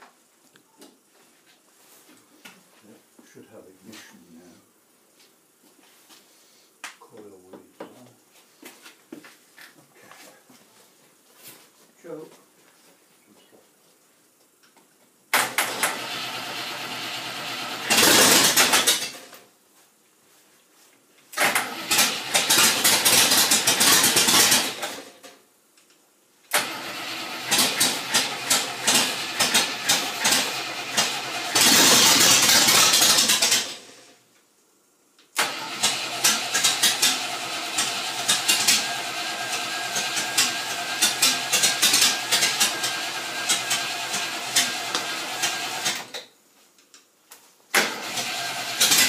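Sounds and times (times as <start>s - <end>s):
engine cranking on starter: 15.4s - 19.3s, 21.4s - 25.2s, 26.5s - 34.1s, 35.4s - 46.2s, 47.7s - 49.0s.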